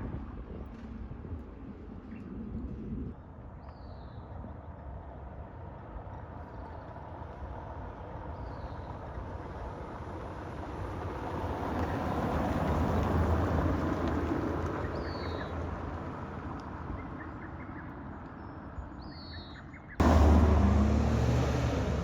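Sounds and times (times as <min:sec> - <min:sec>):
car driving past: 0:20.0 - 0:22.0.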